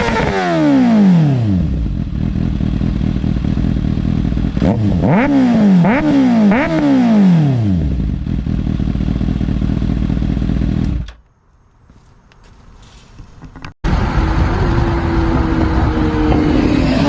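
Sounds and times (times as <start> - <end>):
motorcycle engine revving: 0.0 - 11.2, 13.9 - 17.0
motorcycle engine idling: 1.4 - 5.3, 7.6 - 11.1.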